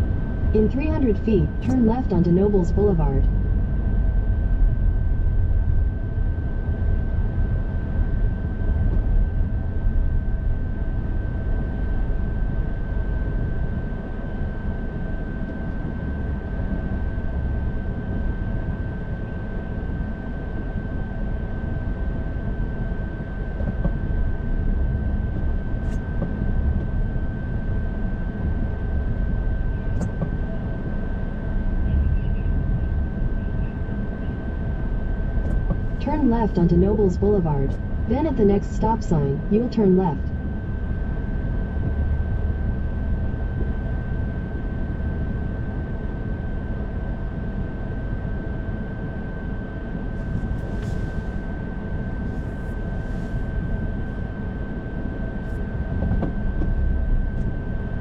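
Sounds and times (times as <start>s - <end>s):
high-pitched whine: 23.6s - 58.0s.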